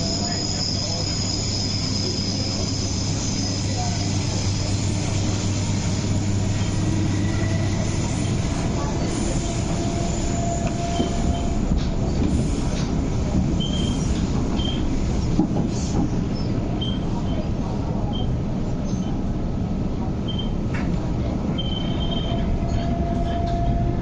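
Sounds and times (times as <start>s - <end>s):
high wheel squeals: 0.0s - 5.1s, 21.6s - 24.0s
electric train low hum: 0.0s - 24.0s.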